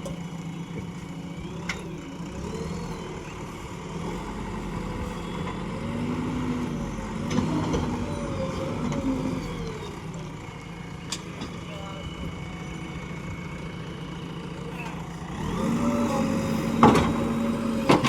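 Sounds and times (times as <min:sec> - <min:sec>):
backhoe diesel engine running: 0:00.0 - 0:18.0.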